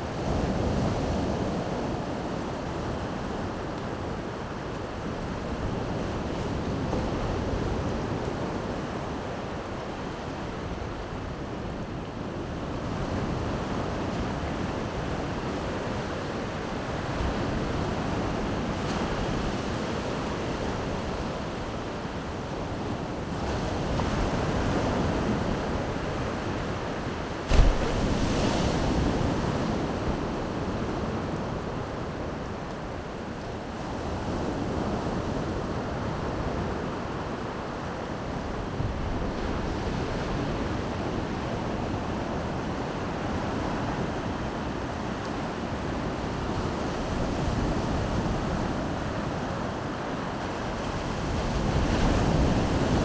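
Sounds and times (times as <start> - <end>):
surf washing onto shore: 23.6 - 32.9.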